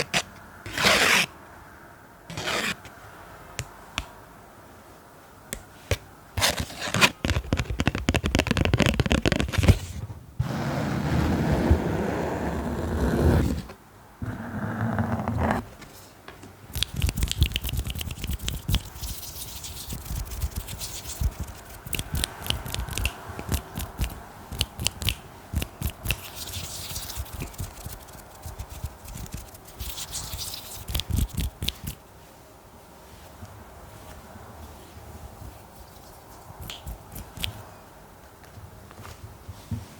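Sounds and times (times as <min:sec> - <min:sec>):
scratching on objects: 0:00.0 - 0:01.3, 0:02.3 - 0:02.9, 0:05.9 - 0:15.7, 0:16.8 - 0:32.0.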